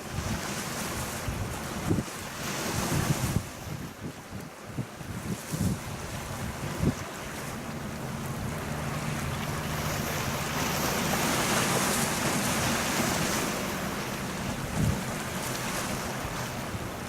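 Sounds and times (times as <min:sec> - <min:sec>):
waves washing: 0:00.0 - 0:17.0
wind on microphone: 0:00.0 - 0:17.0
low hum: 0:06.0 - 0:17.0.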